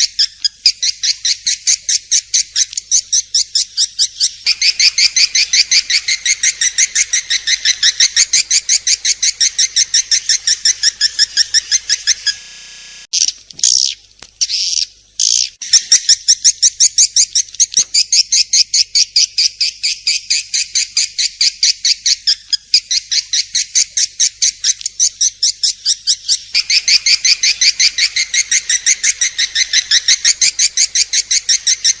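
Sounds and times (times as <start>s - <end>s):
swiftlet high chirps: 4.5s - 13.1s, 26.6s - 32.0s.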